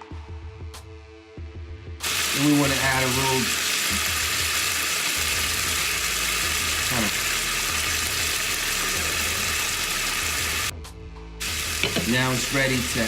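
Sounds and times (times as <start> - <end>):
vegetables sizzling in a pan: 2.0 - 10.7, 11.4 - 13.0.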